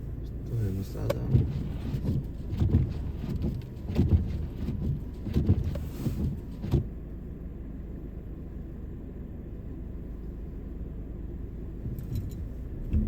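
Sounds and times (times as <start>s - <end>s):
car road noise rumble: 0.0s - 13.0s
irregular thuds: 1.0s - 7.0s.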